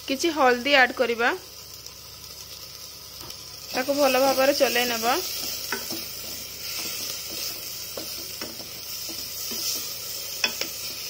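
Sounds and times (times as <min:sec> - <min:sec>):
onion and tomato sizzling in oil: 0:00.0 - 0:11.0
spatula scraping and knocking pot: 0:05.3 - 0:11.0.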